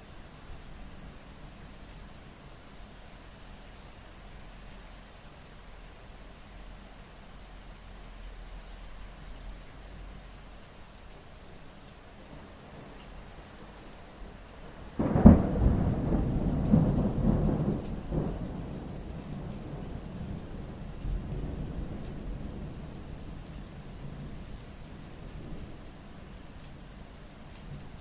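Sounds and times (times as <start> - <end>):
steady rain: 0.0 - 28.0
thunder crack and rumble: 15.0 - 23.0.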